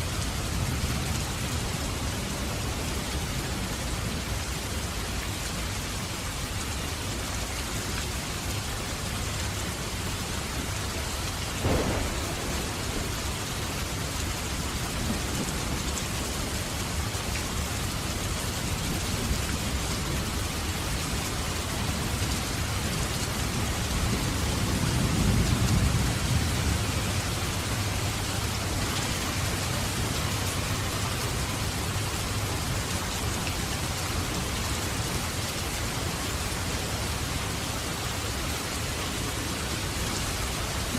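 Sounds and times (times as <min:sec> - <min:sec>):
heavy rain falling: 0:00.0 - 0:40.9
sharp thunder crack: 0:11.6 - 0:15.8.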